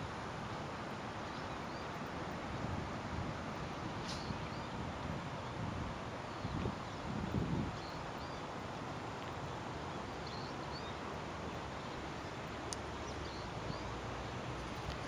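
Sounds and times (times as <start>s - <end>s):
low wind buffet: 1.9s - 10.0s
faint high bird chirps: 10.2s - 11.0s.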